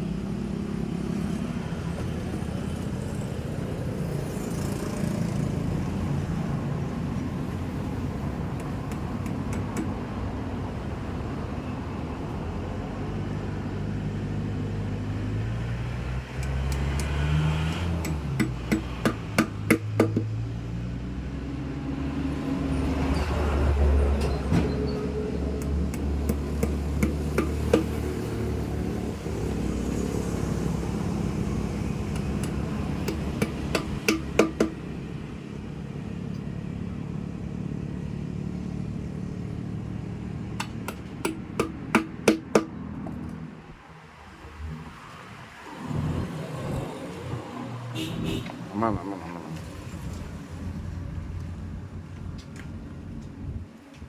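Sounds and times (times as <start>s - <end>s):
engine humming: 0.0s - 54.0s.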